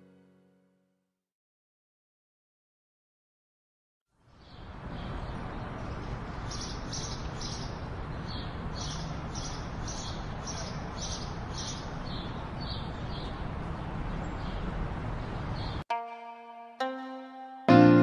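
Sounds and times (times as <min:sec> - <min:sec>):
bird chirping: 0:04.3 - 0:15.8.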